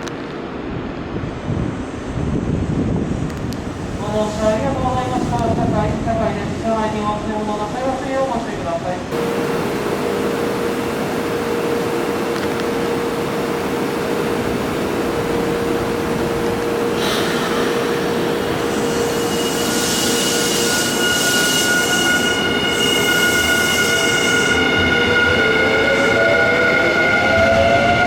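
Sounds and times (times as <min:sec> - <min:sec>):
electric train rolling: 0:09.0 - 0:28.0
train wheels squealing: 0:17.0 - 0:28.0.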